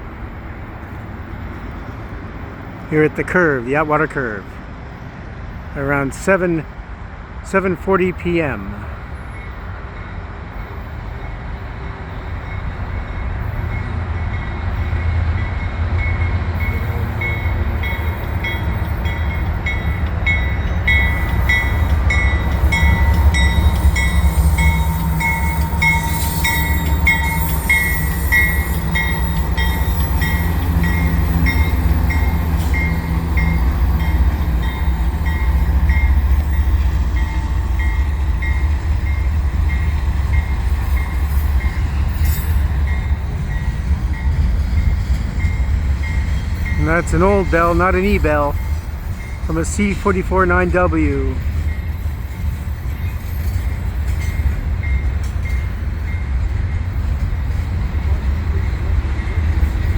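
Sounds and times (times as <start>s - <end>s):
locomotive rumble: 0.0s - 59.9s
locomotive bell ringing: 12.3s - 56.5s.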